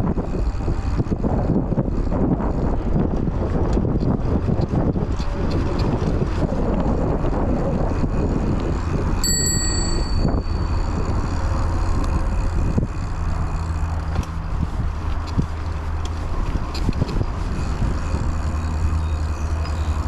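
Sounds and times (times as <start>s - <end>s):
wind on microphone: 0.0s - 20.0s
tyres rolling on trail: 0.5s - 20.0s
bicycle bell ringing: 9.2s - 11.6s.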